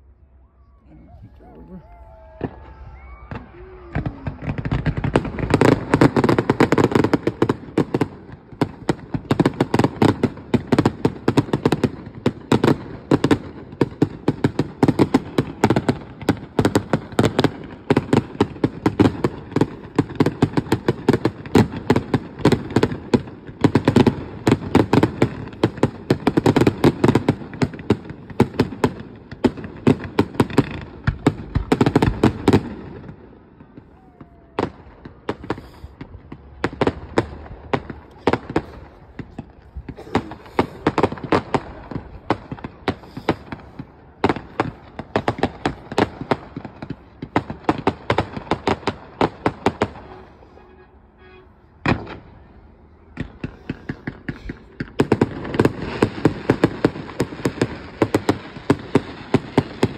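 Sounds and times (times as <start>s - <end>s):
fireworks bangs and crackling: 1.4s - 59.9s.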